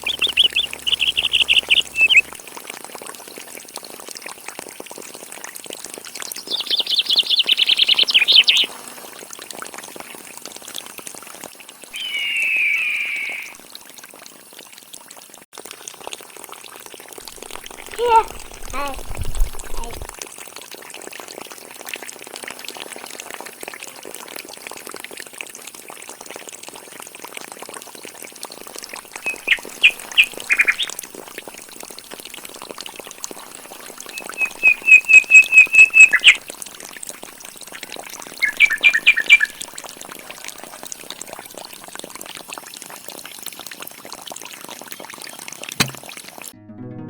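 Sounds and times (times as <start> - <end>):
bird chirping: 0.0 - 2.3, 6.4 - 8.7, 12.0 - 13.6, 17.4 - 20.1, 29.2 - 31.0, 33.9 - 36.4, 38.3 - 39.7
background hiss: 11.9 - 13.6.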